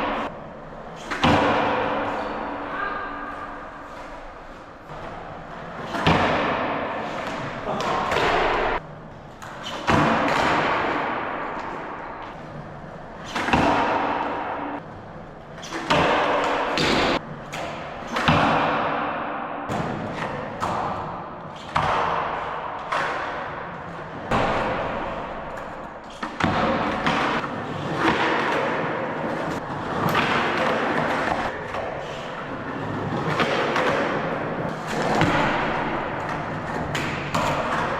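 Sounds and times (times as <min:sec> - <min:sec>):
skateboard slap or landing thud: 0:15.8 - 0:19.1, 0:21.7 - 0:23.6.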